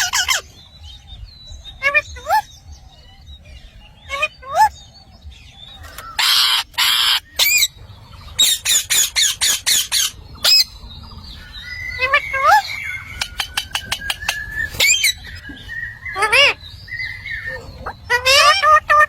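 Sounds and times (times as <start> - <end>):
parrot calling and squawking: 0.0 - 0.6, 1.8 - 2.5, 4.0 - 4.8, 5.8 - 10.8, 11.4 - 19.0.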